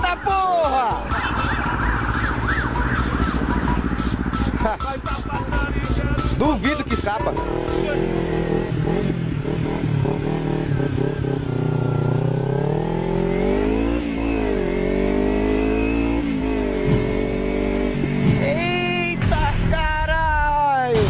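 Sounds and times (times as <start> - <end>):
motorcycle engine revving: 0.0 - 19.4.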